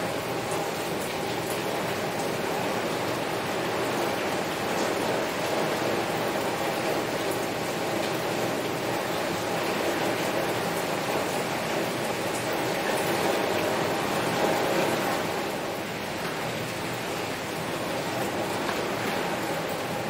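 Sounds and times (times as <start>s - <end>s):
heavy rain on a window: 0.0s - 20.0s.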